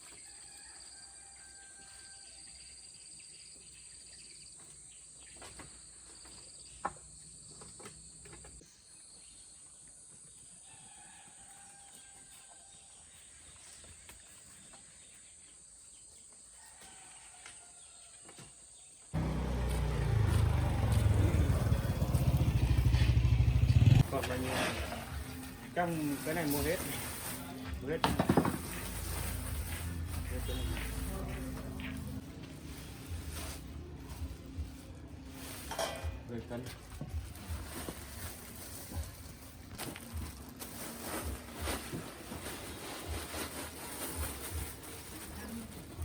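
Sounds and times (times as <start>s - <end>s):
loud low rumble: 19.2s - 24.1s.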